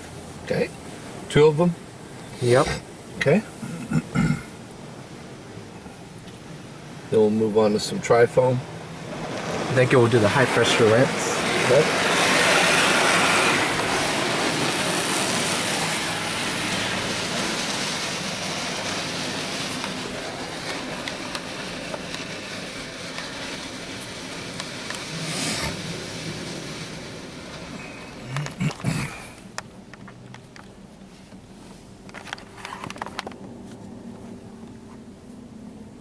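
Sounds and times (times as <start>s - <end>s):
spray hissing on car body: 8.7s - 29.6s.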